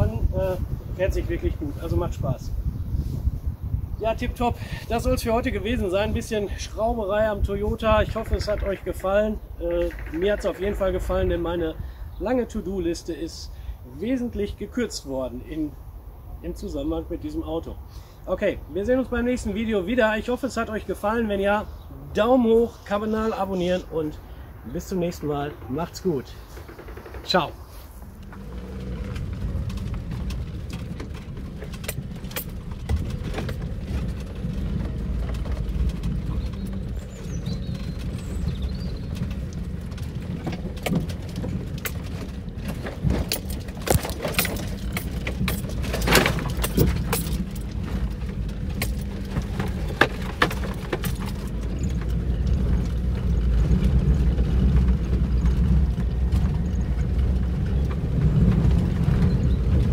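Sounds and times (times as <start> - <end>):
car engine and road rumble: 0.0 - 59.9
small rattles and knocks: 4.2 - 11.6, 24.8 - 59.9.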